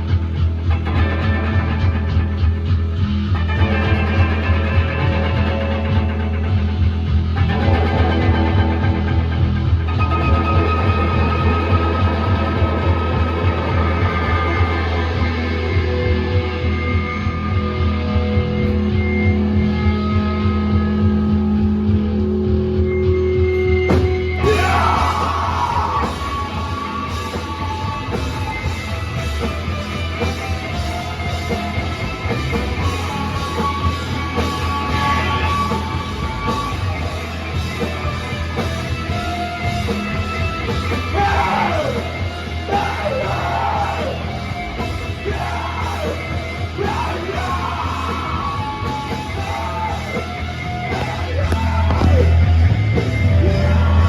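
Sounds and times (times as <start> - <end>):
rock band playing loudly: 0.0 - 54.0
shouted vocals: 24.4 - 38.0, 40.6 - 54.0.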